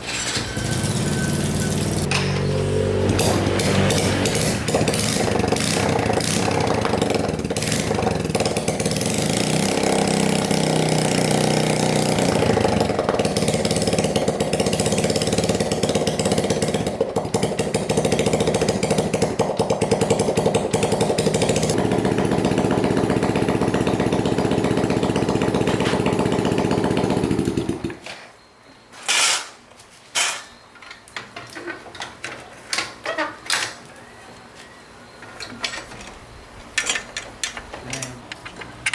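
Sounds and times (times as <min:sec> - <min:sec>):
motorbike engine running: 0:00.6 - 0:27.9
sharp metallic clicks and knocks: 0:35.2 - 0:38.9.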